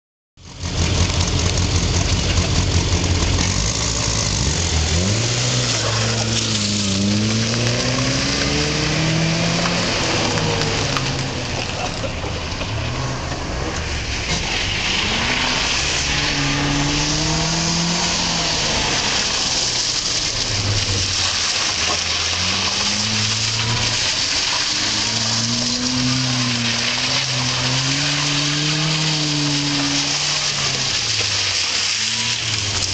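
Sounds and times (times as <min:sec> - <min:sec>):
car engine revving: 0:00.4 - 0:32.9.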